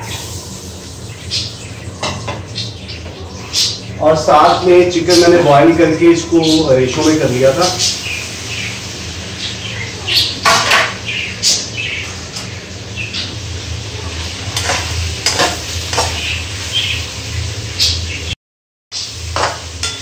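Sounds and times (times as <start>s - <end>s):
food sizzling in oil: 0.0s - 2.8s, 6.3s - 18.4s, 19.0s - 20.0s
dishes and utensils clinking: 2.0s - 2.5s, 10.4s - 11.0s, 14.4s - 16.3s, 19.3s - 20.0s.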